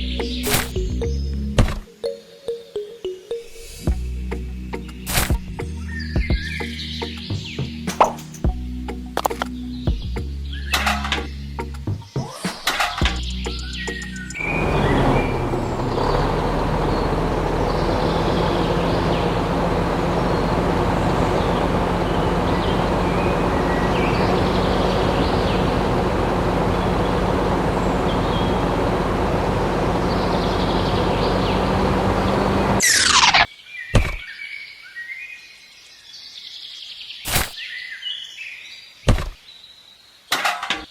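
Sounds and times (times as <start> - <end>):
birds chirping: 0.0 - 40.9
small engine humming: 13.0 - 33.5.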